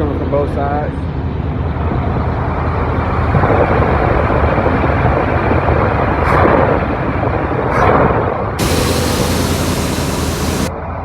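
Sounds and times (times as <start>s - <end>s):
engine idling: 8.6s - 10.7s.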